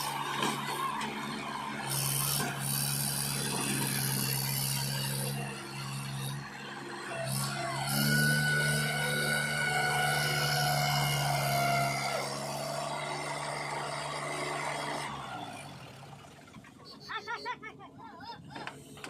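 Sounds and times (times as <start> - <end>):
heavy machinery diesel engine: 0.0 - 17.4.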